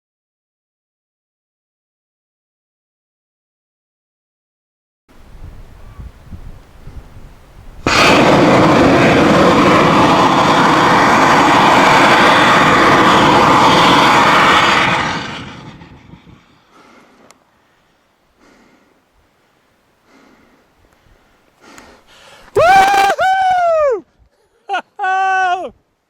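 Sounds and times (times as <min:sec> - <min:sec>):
rocket motor roaring: 0:07.8 - 0:16.7.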